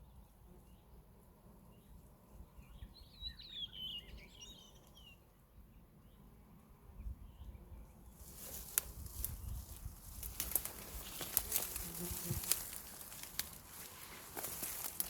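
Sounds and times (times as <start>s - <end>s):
plants rustling and crackling: 8.1s - 15.0s.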